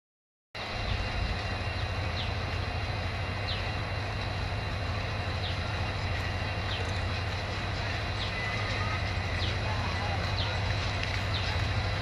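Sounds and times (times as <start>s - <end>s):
distant train rumble: 0.6s - 12.0s.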